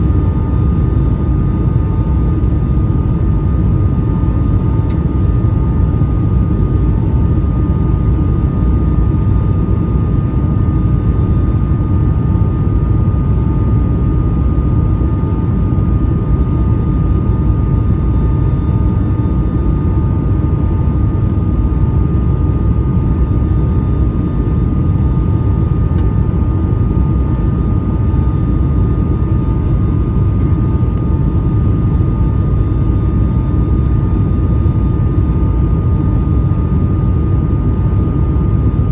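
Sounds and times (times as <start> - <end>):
airliner cabin rumble: 0.0 - 38.9
steady whine: 0.0 - 38.9.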